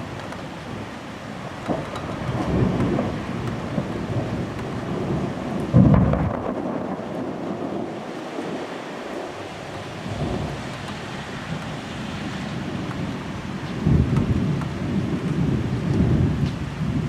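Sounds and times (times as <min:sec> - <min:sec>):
rain falling: 0:00.0 - 0:17.0
thunder rumbling: 0:00.0 - 0:17.0.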